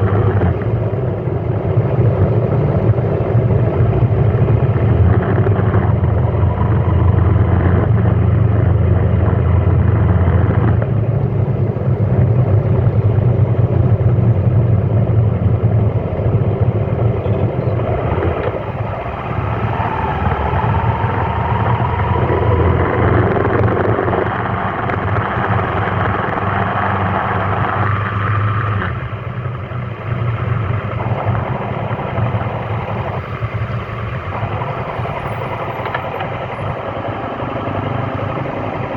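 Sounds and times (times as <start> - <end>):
faint rising whine: 0.0 - 38.9
traffic engines humming: 0.0 - 38.9.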